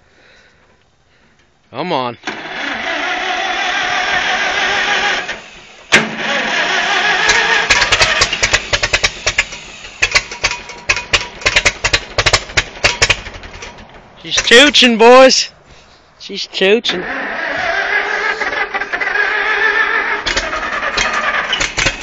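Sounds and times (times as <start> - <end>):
starter cranking: 2.2 - 14.9, 16.9 - 22.0
tractor engine running roughly: 2.3 - 14.8, 17.4 - 22.0.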